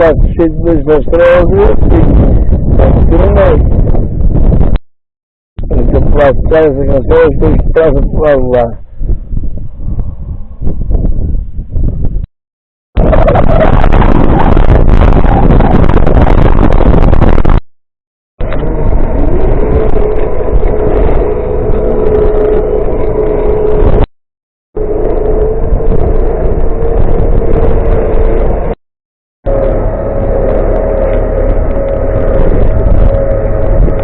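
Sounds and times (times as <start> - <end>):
vehicle engine running: 18.4 - 24.1, 24.8 - 28.8, 29.5 - 34.0.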